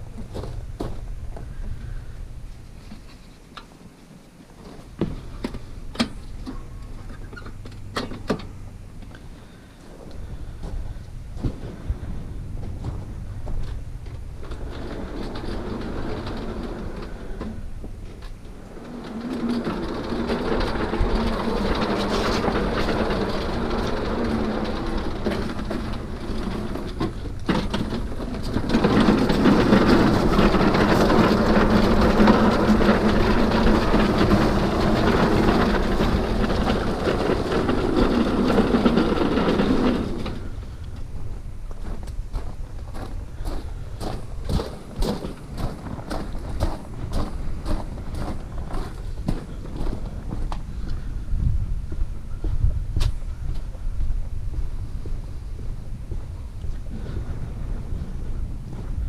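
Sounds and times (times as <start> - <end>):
small lawn equipment engine running: 14.4 - 17.8, 18.4 - 41.1.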